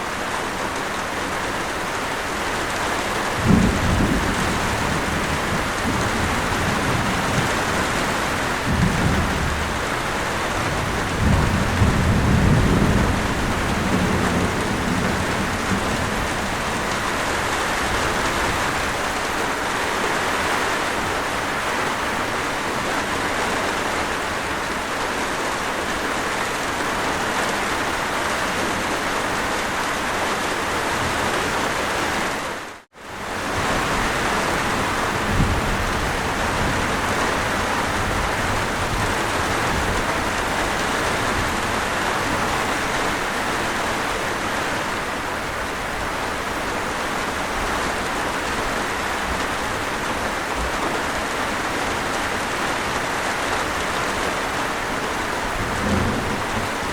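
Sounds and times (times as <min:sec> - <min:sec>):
heavy rain: 0:00.0 - 0:56.9
thunder rumbling: 0:03.2 - 0:19.2, 0:33.3 - 0:52.5, 0:54.1 - 0:56.9.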